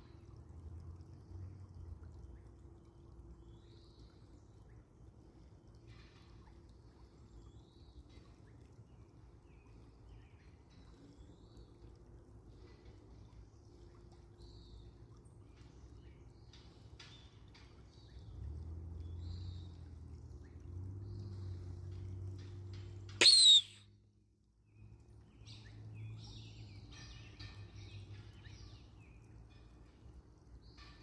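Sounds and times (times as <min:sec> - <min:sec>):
faint high bird calls: 0:23.2 - 0:23.8
hawk-like scream: 0:23.2 - 0:23.8.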